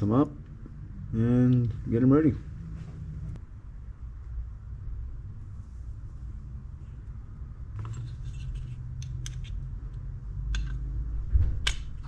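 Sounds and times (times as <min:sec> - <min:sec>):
low steady hum: 0:00.0 - 0:12.0
small metal parts clicking and scraping: 0:07.8 - 0:09.6.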